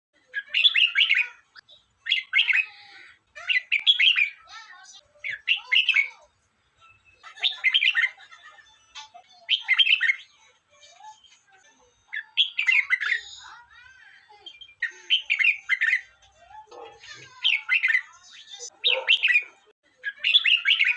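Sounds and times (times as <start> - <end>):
bulbul singing: 14.4 - 19.6.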